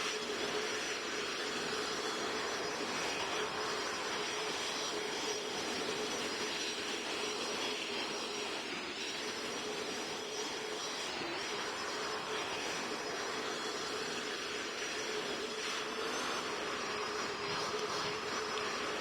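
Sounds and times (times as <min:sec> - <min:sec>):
jet engine and airflow noise: 0:00.0 - 0:19.0.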